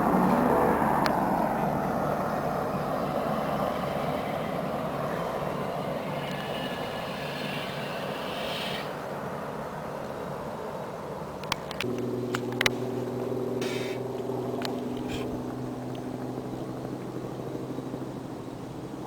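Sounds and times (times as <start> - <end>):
faint high whine: 0.0 - 19.0
helicopter flying by: 0.0 - 19.0.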